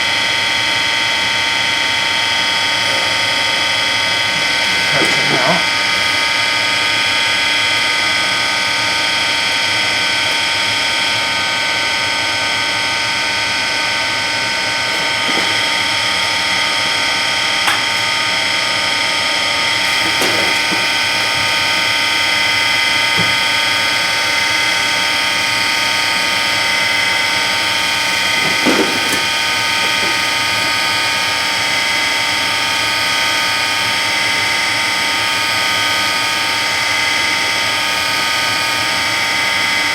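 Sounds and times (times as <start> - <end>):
metalworking machine tool cutting: 2.4 - 11.2, 13.1 - 32.2.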